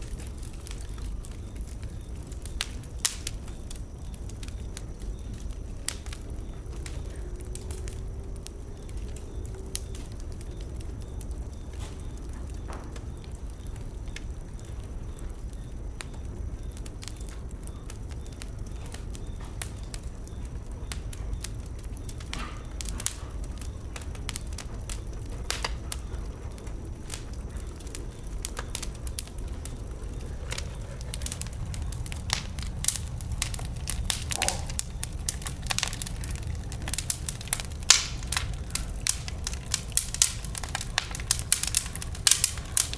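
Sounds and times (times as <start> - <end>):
bonfire crackling and popping: 0.0 - 42.9.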